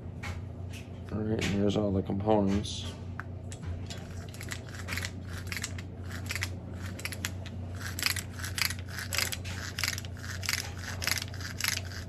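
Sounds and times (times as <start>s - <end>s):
small parts clicking and scraping: 3.9s - 12.0s.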